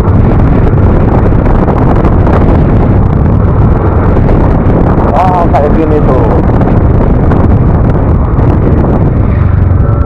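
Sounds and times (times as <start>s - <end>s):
road noise: 0.0s - 10.0s
wind buffeting microphone: 0.0s - 10.0s
scooter engine: 7.4s - 10.0s.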